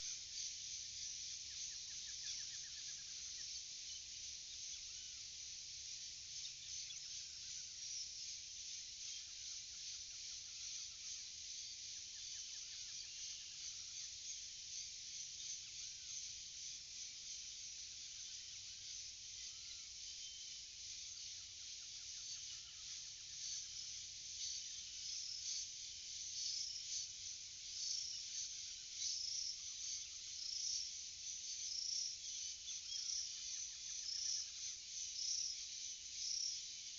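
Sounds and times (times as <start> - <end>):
bird calls: 0.0 - 5.3
insects chirping: 0.0 - 36.9.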